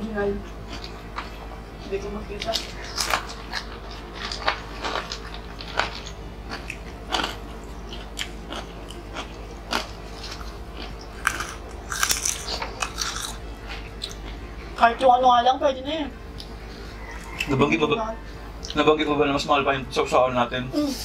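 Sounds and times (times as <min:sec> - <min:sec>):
crunching crispy snack crackers: 0:02.6 - 0:14.4.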